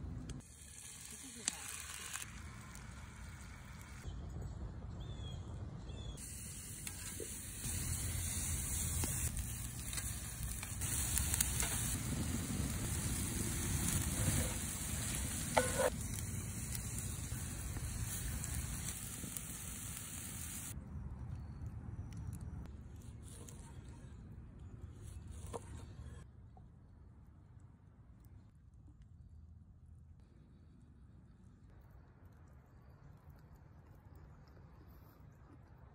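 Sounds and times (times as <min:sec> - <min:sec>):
food sizzling in a skillet: 0:00.4 - 0:04.0, 0:06.2 - 0:20.8.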